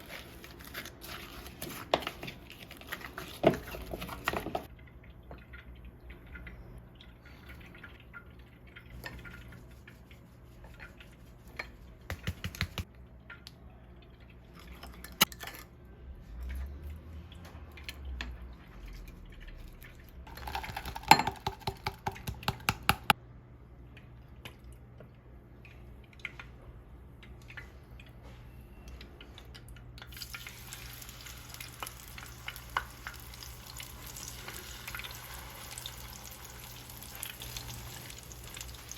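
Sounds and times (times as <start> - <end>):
cooking hiss: 30.1 - 38.9.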